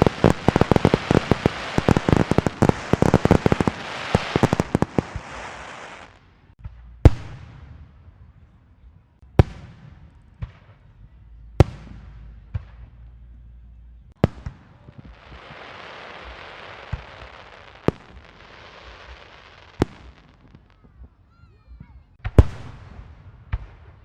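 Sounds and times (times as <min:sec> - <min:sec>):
firecrackers popping: 0:00.0 - 0:07.8, 0:14.1 - 0:21.0
fireworks bangs: 0:00.0 - 0:08.2, 0:14.1 - 0:21.1, 0:22.2 - 0:24.0.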